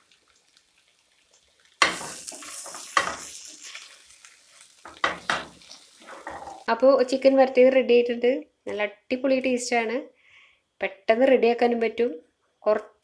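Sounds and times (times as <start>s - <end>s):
chicken sizzling in a pan: 0.0s - 6.7s.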